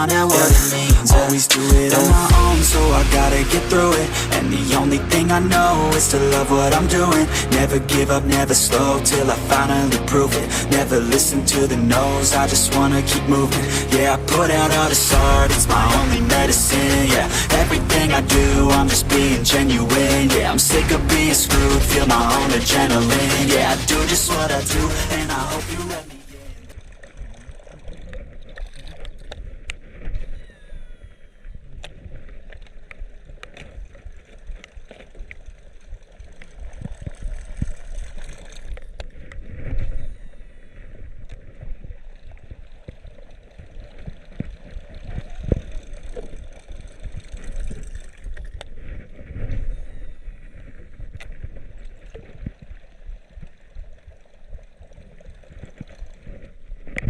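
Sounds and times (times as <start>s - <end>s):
handling rumble: 2.2s - 27.3s.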